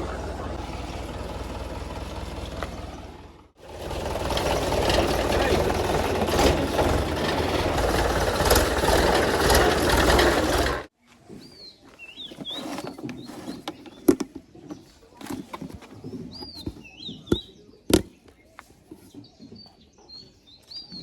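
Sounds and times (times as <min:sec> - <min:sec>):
small birds chirping: 0:11.0 - 0:21.0.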